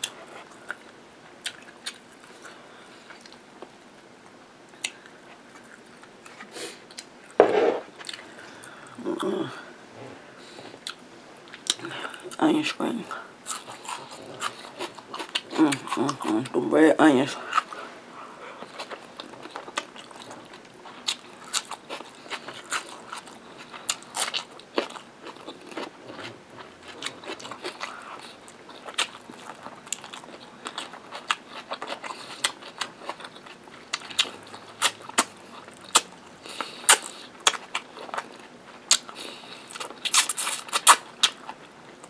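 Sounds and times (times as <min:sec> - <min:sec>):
chewing with wet mouth clicks: 0:00.0 - 0:03.4, 0:04.7 - 0:07.1, 0:10.8 - 0:11.9, 0:18.6 - 0:42.0.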